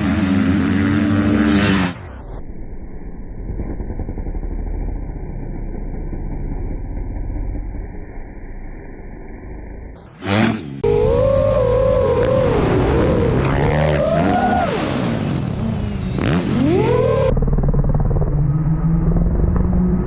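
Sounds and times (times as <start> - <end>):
dirt bike engine revving: 0.0 - 2.4, 10.0 - 19.4
muffled dirt bike engine: 0.0 - 20.0.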